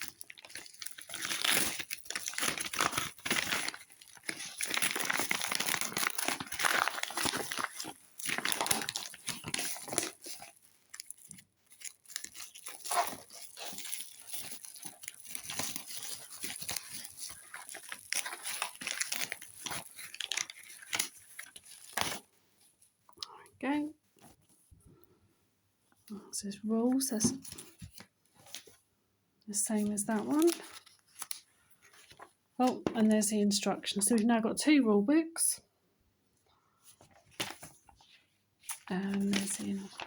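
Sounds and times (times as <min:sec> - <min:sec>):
packaging crinkling: 0:00.0 - 0:22.3, 0:29.9 - 0:32.3, 0:38.6 - 0:40.0.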